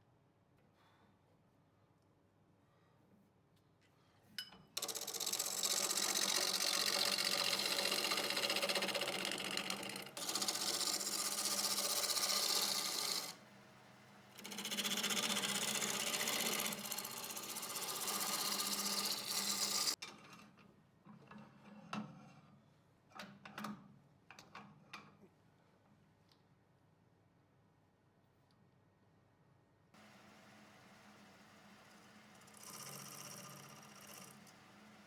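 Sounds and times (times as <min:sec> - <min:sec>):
power tool cutting wood: 0:04.9 - 0:13.4, 0:14.4 - 0:20.0.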